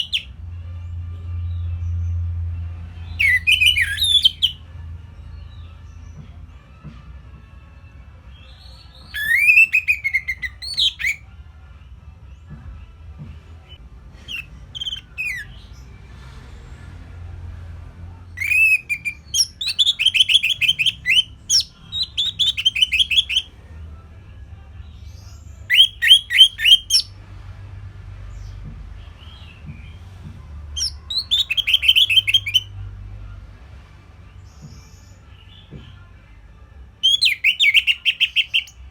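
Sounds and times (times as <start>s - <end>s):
thrush singing whistled notes: 0.0s - 0.3s, 3.0s - 4.6s, 8.4s - 11.2s, 14.2s - 15.9s, 18.4s - 23.5s, 25.7s - 27.2s, 30.8s - 32.7s, 37.0s - 38.8s.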